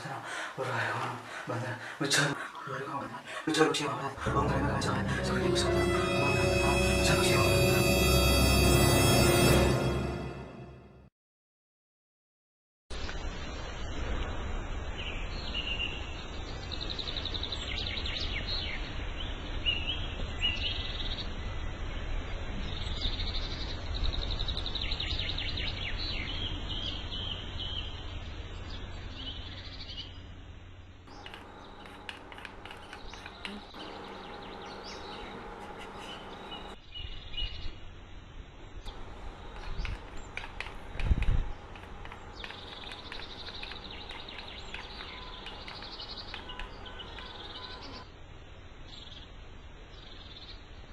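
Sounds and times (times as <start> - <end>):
scattered clicks: 31.1 - 35.8, 39.1 - 47.6
small birds chirping: 31.1 - 37.9, 38.8 - 48.0.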